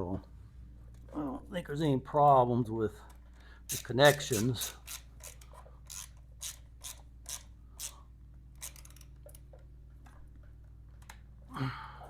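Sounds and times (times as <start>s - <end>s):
metallic clicks of hand tools: 3.7s - 8.0s, 8.6s - 9.6s.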